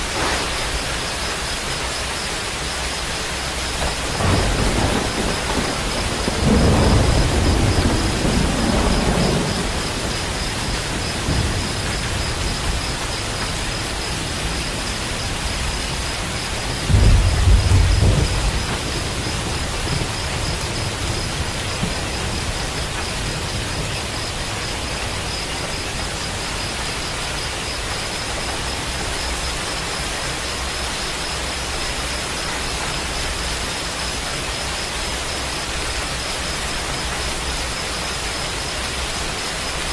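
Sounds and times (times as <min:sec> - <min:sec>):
steady rain: 0:00.0 - 0:39.9
thunder clap: 0:03.6 - 0:26.5
rolling thunder: 0:03.6 - 0:27.1.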